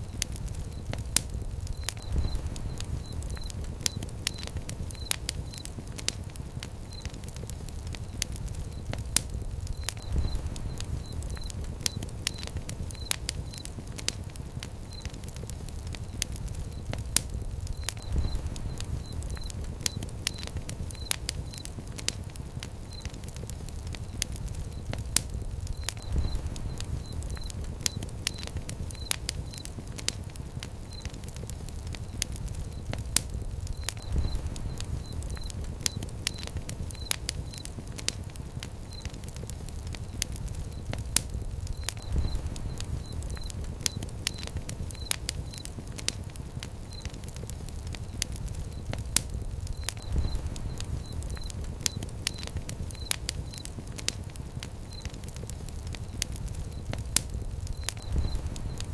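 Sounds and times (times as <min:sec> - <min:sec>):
fire crackling and popping: 0:00.0 - 0:58.9
low rumble of flame: 0:00.0 - 0:58.9
faint high chirps: 0:57.6 - 0:58.9.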